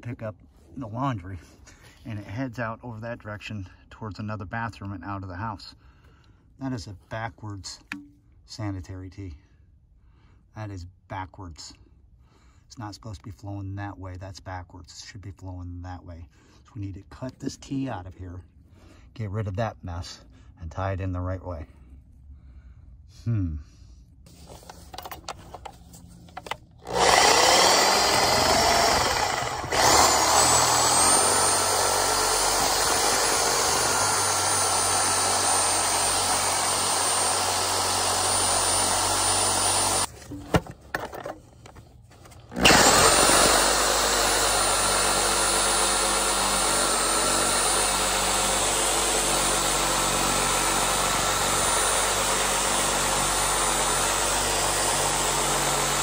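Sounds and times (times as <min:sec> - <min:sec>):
reciprocating saw cutting pipe: 0:26.8 - 0:40.1, 0:42.5 - 0:56.0.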